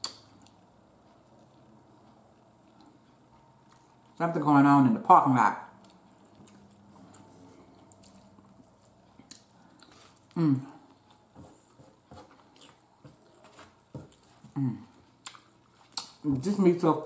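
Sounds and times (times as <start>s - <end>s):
soft chewing: 0.0s - 4.3s, 5.7s - 17.0s
person murmuring: 10.4s - 10.8s, 14.6s - 14.9s.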